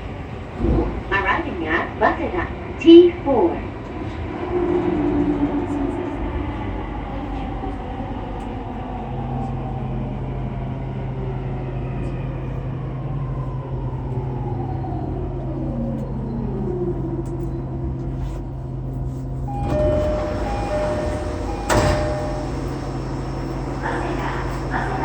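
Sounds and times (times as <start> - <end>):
traction motor whine: 19.5 - 25.0.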